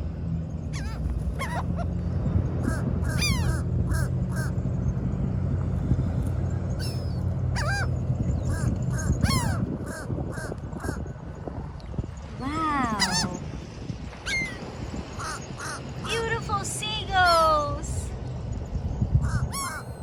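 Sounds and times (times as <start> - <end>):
low steady rumble: 0.0 - 20.0
seagulls calling: 0.7 - 2.0, 2.6 - 4.6, 6.7 - 11.2, 12.8 - 13.6, 14.2 - 16.4, 19.2 - 20.0.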